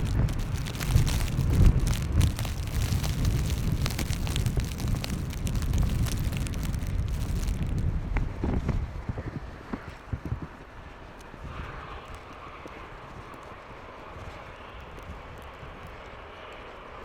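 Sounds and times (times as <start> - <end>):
crackling clicks: 0.0 - 7.9
wind buffeting microphone: 0.0 - 10.4.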